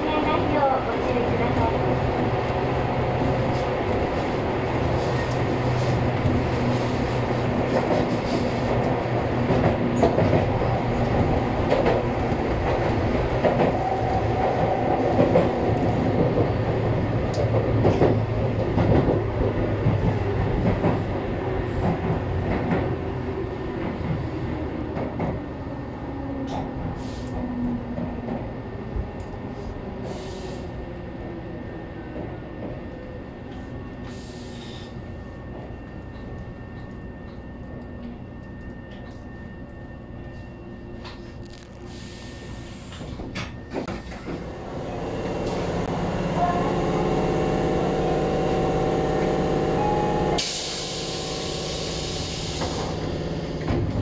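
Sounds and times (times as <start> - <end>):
train wheels on rail: 0.0 - 54.0
clickety-clack of train wheels: 0.2 - 23.0, 23.7 - 25.7, 26.3 - 30.3, 32.1 - 40.4, 42.6 - 44.6, 50.2 - 54.0.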